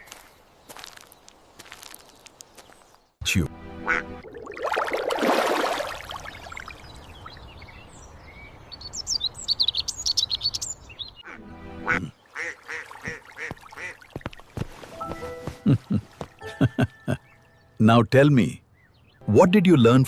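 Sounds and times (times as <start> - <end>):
small birds chirping: 0.0 - 3.3, 6.1 - 20.0
duck quacking: 3.8 - 4.2, 11.2 - 14.0.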